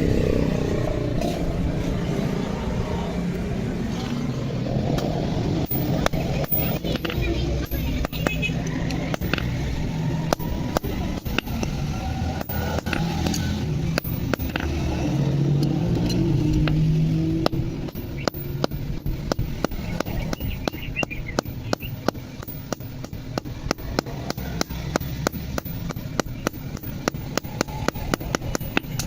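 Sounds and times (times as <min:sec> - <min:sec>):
low engine rumble: 0:00.0 - 0:29.0
hammer striking metal: 0:05.6 - 0:29.0.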